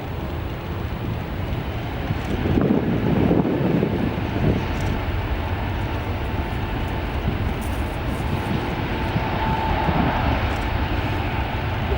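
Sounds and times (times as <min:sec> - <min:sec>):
jet engines rumbling: 0:00.0 - 0:11.9.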